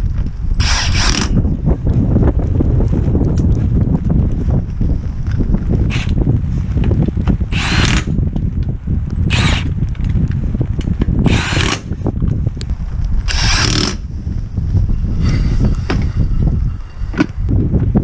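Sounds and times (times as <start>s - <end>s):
wind rumble on microphone: 0.0s - 18.0s
power tool running: 0.6s - 1.3s, 11.3s - 11.8s, 13.3s - 14.0s.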